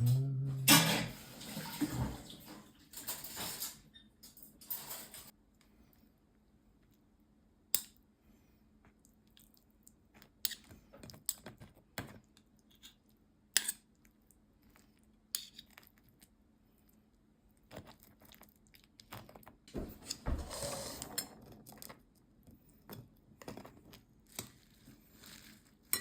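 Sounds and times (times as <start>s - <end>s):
cutlery and dishes clinking: 0.0s - 1.2s, 3.0s - 5.3s.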